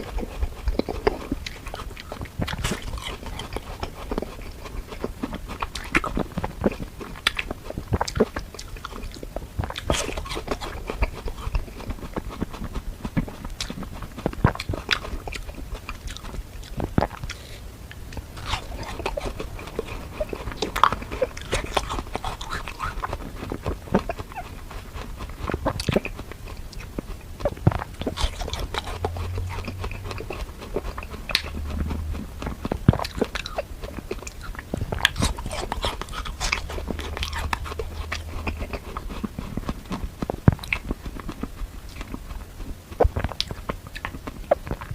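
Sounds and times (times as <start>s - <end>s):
chewing frozen fruit crunches: 0.0s - 44.9s.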